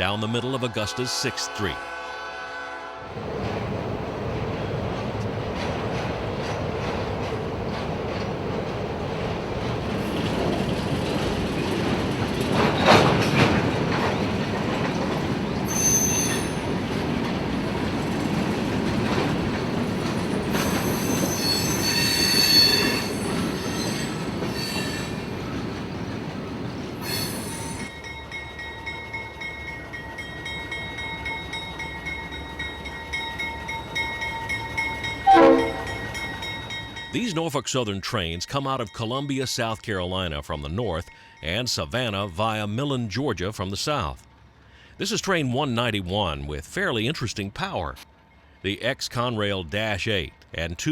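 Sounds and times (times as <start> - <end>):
freight train rumble: 0.0 - 50.9
loud horn blast: 0.7 - 3.1, 35.3 - 36.0
train wheels squealing: 15.6 - 16.8, 20.5 - 25.5, 27.0 - 28.1.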